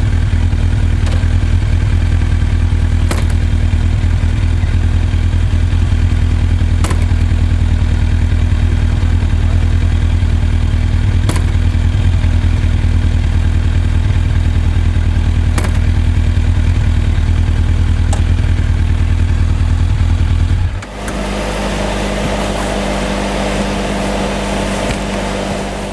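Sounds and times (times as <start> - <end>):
motorcycle engine running: 0.0 - 25.9
sharp mechanical clack: 3.1 - 3.6, 6.7 - 7.4, 11.2 - 11.7, 15.5 - 16.2.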